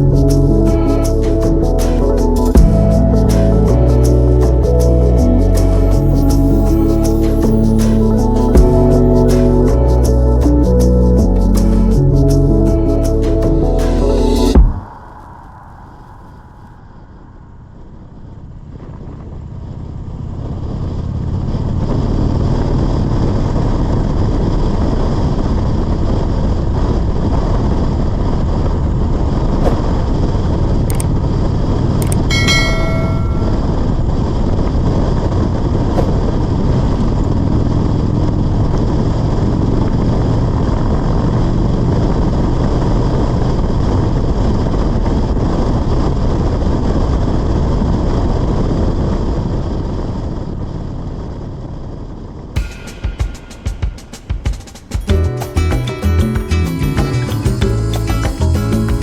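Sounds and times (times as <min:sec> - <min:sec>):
motorcycle engine rumble: 0:00.0 - 0:15.0
wind and road noise: 0:00.0 - 0:52.8
brief high tone: 0:32.3 - 0:34.0.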